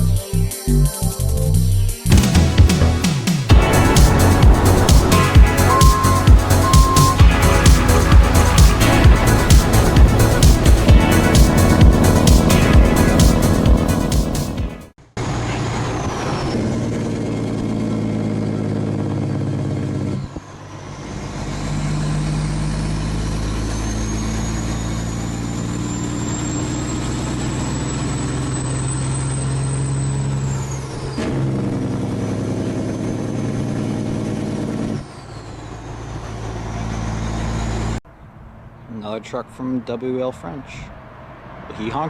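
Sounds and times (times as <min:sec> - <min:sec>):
truck engine running: 0:02.1 - 0:39.7
thin high whistle: 0:05.6 - 0:07.2.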